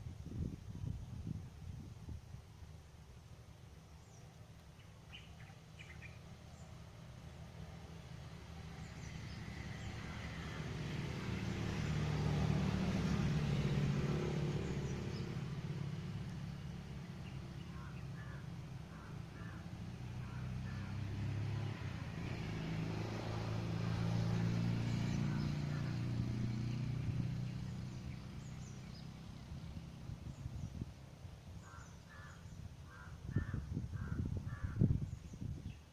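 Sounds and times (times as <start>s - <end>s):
motor vehicles passing: 3.4s - 35.9s.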